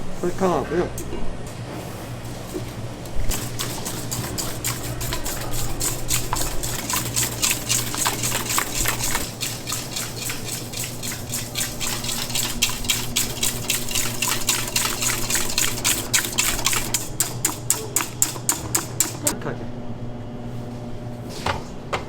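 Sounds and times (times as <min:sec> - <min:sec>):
utensil stirring in a bowl: 0:02.5 - 0:19.4.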